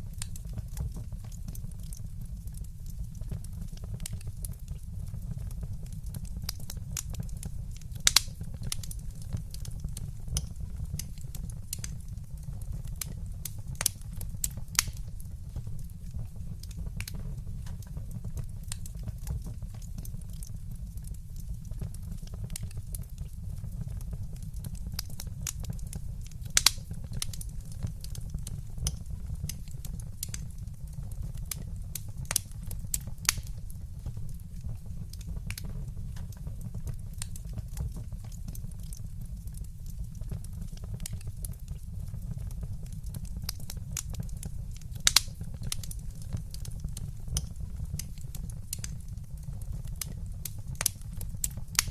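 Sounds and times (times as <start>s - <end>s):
low steady fire rumble: 0.0s - 51.9s
wood fire crackling: 0.0s - 51.9s
sharp fire pops: 5.4s - 20.6s, 21.3s - 39.6s, 40.2s - 49.1s, 49.8s - 51.9s.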